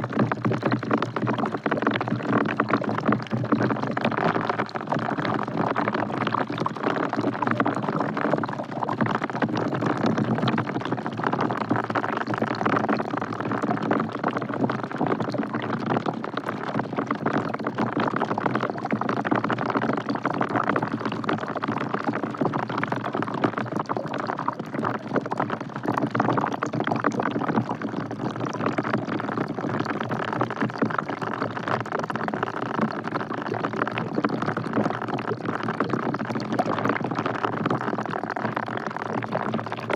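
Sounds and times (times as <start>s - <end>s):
rain falling into a bucket: 0.0s - 39.9s.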